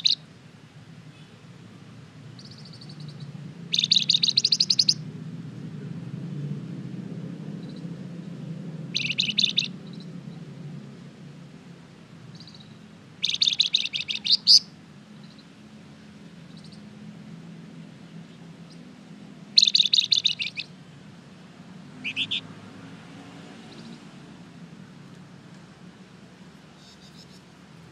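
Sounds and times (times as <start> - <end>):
faint bird chirps: 0.0 - 0.2, 2.3 - 5.0, 8.9 - 10.4, 12.3 - 15.5, 16.4 - 16.9, 19.6 - 20.7, 22.0 - 22.5, 26.7 - 27.6
songbird trilling: 0.0 - 0.2, 2.3 - 5.0, 8.9 - 10.2, 12.3 - 15.5, 16.4 - 16.9, 18.6 - 18.9, 19.5 - 20.8, 21.9 - 22.5, 26.8 - 27.5.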